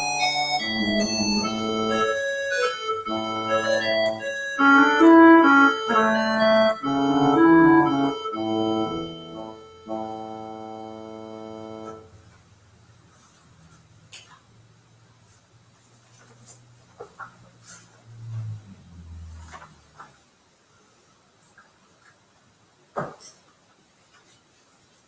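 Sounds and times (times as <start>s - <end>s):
organ playing sustained chords: 0.0s - 12.1s.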